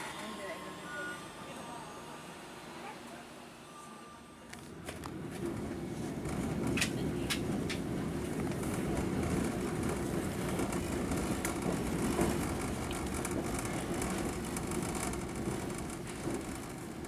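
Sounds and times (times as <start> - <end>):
train wheels rumbling on rails: 4.6 - 17.0.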